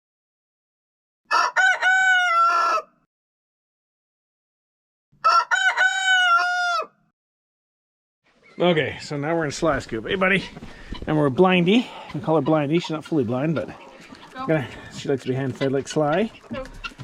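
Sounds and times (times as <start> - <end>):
rooster crowing: 1.3 - 3.0, 5.2 - 7.0.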